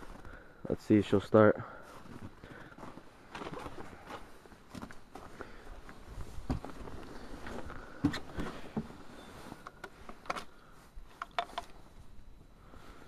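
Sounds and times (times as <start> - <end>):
hands clicking vehicle controls: 11.2 - 11.7.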